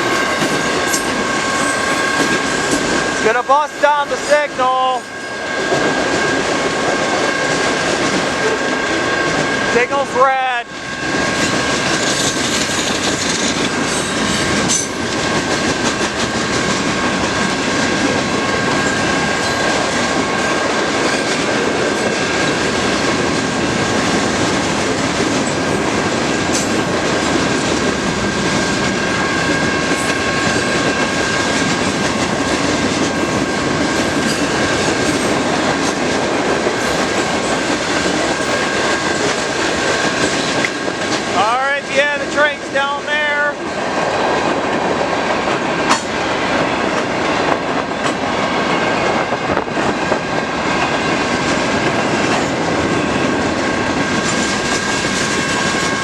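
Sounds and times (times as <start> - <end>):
steady high-pitched tone: 0.0 - 6.6
freight train cars clattering: 0.0 - 56.0.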